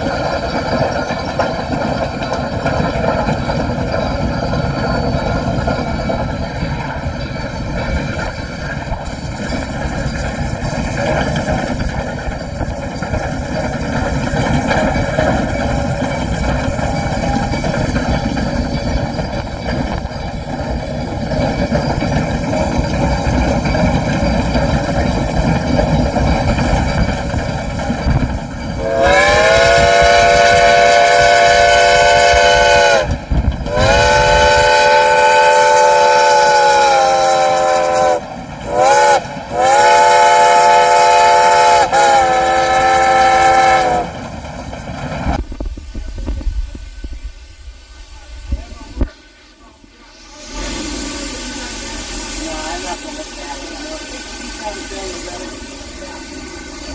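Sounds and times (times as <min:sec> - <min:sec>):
steam locomotive rumbling: 0:00.0 - 0:56.9
train chime whistle blasts: 0:28.8 - 0:44.2.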